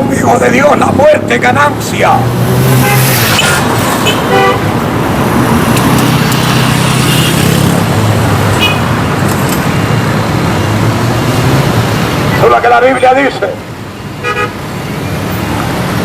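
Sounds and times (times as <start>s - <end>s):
road traffic: 0.0s - 16.0s
car horn toots: 2.8s - 4.7s, 14.2s - 14.6s.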